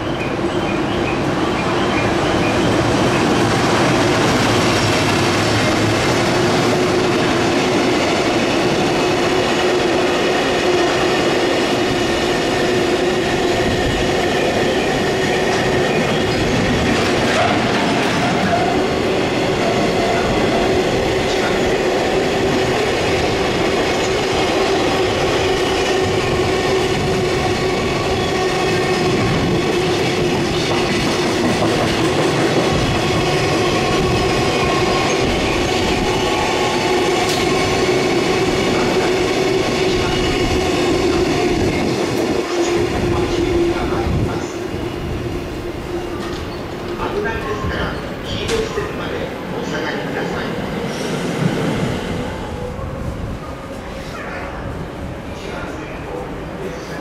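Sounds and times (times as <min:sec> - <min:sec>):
train wheels rumbling on rail: 0:00.0 - 0:57.0
steady high tone: 0:34.7 - 0:39.2.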